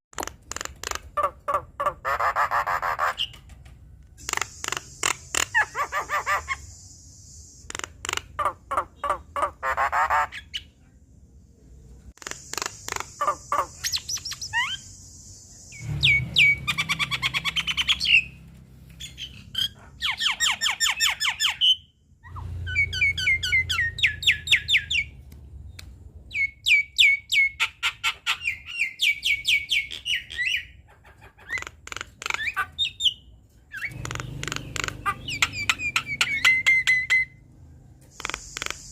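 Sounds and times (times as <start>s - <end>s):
myna singing harsh clicks: 38.1s - 38.9s.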